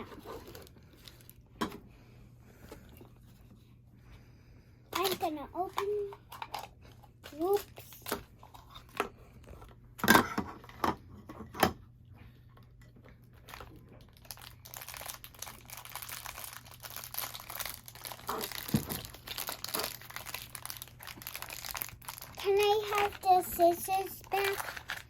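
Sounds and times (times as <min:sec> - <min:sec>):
plastic wrapper crinkling: 0:00.1 - 0:01.4, 0:13.3 - 0:25.0.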